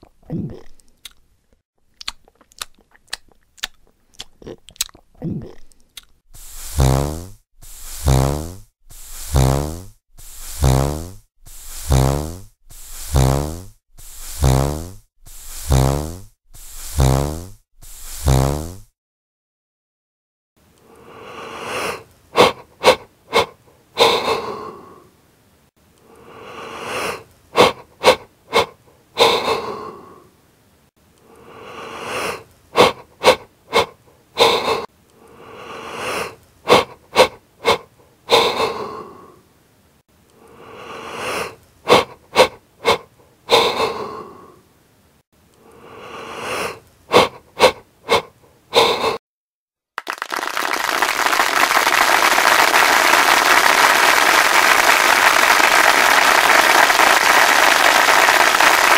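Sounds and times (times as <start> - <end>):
wheezy breathing bursts: 6.3 - 18.5, 31.3 - 39.4, 40.4 - 44.6, 45.6 - 49.2.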